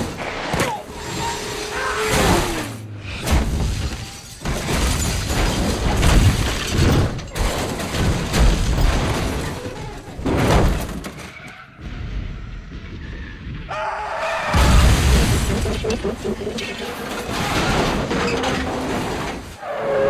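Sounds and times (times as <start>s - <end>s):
heavy car crashes: 14.5s - 16.4s, 17.0s - 19.6s.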